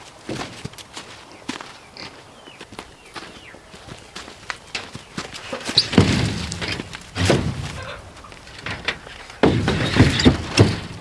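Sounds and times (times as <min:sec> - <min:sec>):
wooden boards thunking down: 0:04.8 - 0:11.0.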